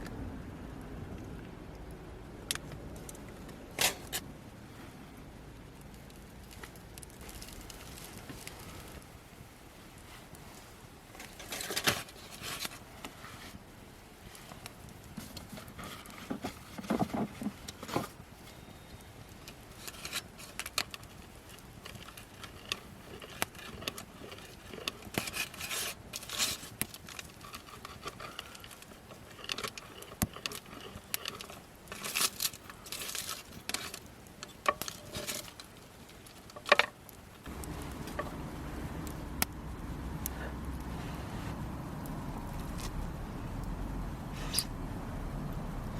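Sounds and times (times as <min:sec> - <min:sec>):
low steady hum: 0:00.0 - 0:12.2, 0:27.2 - 0:45.9
rustling: 0:05.7 - 0:43.5
objects clinking and scraping: 0:19.8 - 0:37.0.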